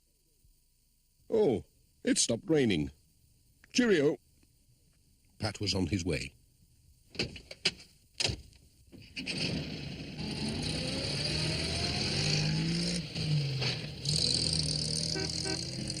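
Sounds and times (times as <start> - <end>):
van engine running: 9.4 - 16.0.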